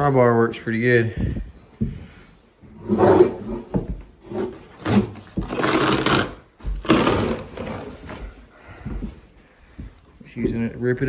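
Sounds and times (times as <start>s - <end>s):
carpet ripping from floor: 4.8s - 8.0s.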